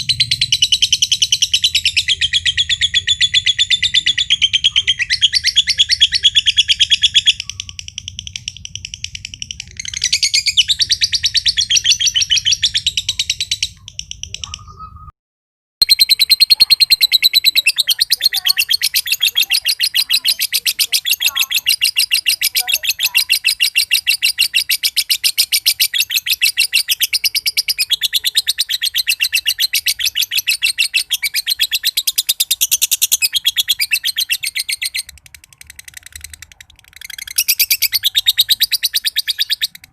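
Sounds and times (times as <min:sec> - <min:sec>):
lovebird chattering trill: 0:00.0 - 0:15.1, 0:15.8 - 0:39.9.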